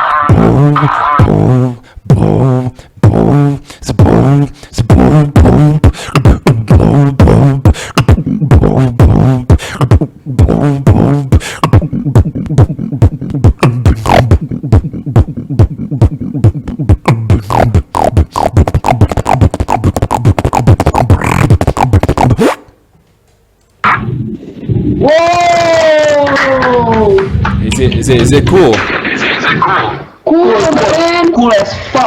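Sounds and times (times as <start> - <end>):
beatboxing: 0.0 - 22.8.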